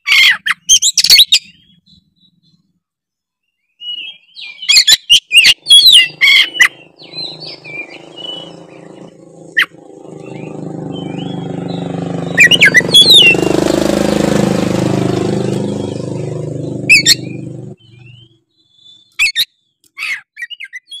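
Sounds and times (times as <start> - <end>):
bird singing whistled phrases: 3.5 - 9.0, 9.6 - 13.5, 16.9 - 21.0
vehicle engine drone passing: 5.5 - 18.3.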